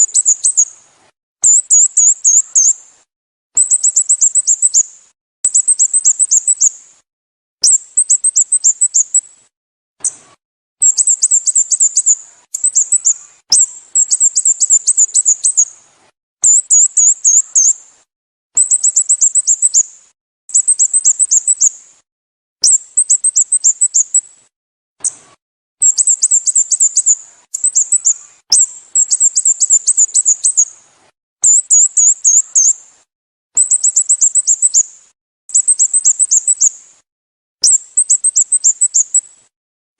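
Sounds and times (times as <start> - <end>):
bird chirping rapidly: 0.0 - 0.7, 1.4 - 2.8, 3.6 - 6.8, 7.6 - 9.3, 10.0 - 15.8, 16.4 - 17.8, 18.6 - 19.9, 20.5 - 21.8, 22.6 - 24.3, 25.8 - 30.8, 31.4 - 32.8, 33.6 - 34.9, 35.5 - 36.8, 37.6 - 39.4.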